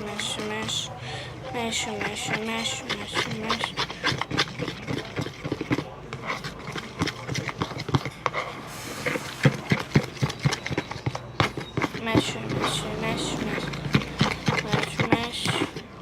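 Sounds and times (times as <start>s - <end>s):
spoon clicking and scraping: 0.0s - 0.9s, 1.6s - 16.0s
spoon stirring sticky mixture: 0.0s - 16.0s.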